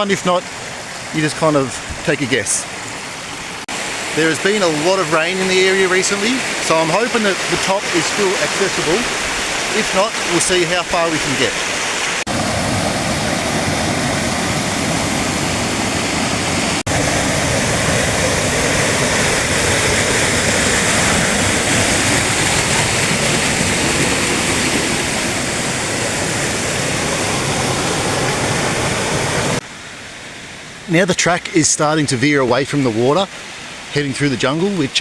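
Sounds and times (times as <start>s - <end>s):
creek water rushing: 0.0s - 35.0s.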